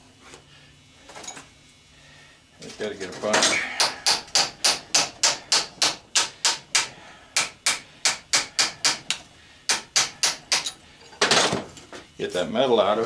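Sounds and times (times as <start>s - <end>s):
hammer striking a metal punch: 3.4s - 10.8s.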